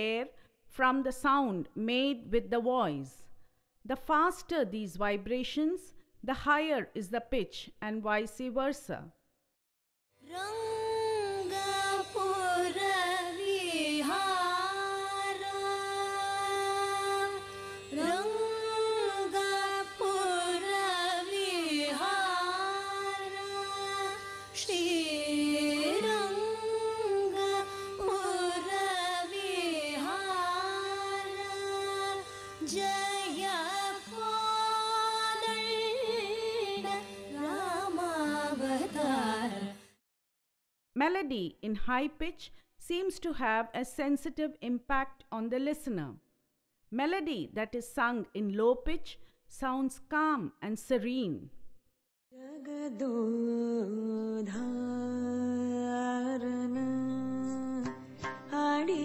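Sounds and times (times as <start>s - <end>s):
person singing: 10.3s - 39.8s, 52.4s - 59.0s.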